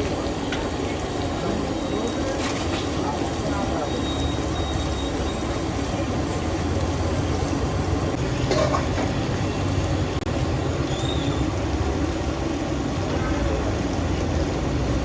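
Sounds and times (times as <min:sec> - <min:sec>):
hot oil sizzling: 0:00.0 - 0:15.0
low rumble of passing traffic: 0:03.0 - 0:15.0.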